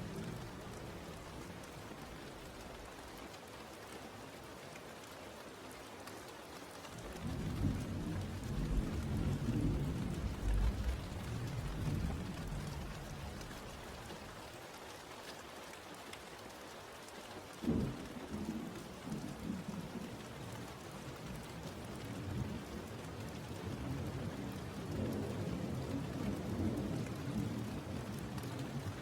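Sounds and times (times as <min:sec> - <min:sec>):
steady rain: 0:00.0 - 0:29.0
thunder rumbling: 0:07.2 - 0:14.2.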